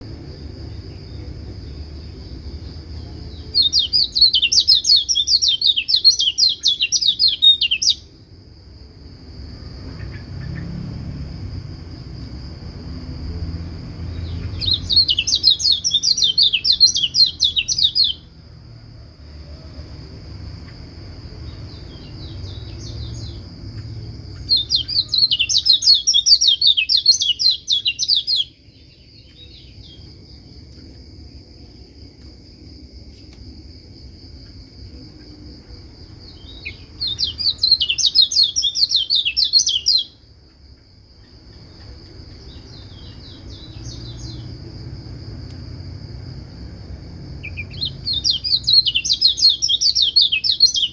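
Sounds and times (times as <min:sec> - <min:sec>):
bird high chattering song: 0:03.0 - 0:08.1, 0:14.2 - 0:18.3, 0:24.3 - 0:30.0, 0:36.3 - 0:40.2, 0:47.4 - 0:50.9.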